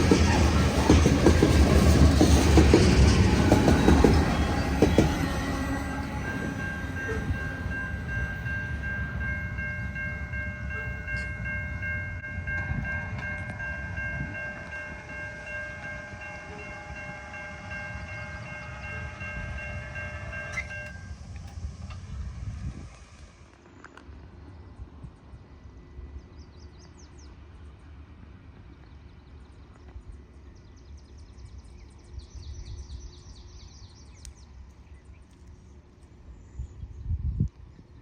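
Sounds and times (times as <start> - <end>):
train rumbling: 0.0 - 38.0
high tones ringing together: 2.9 - 21.4.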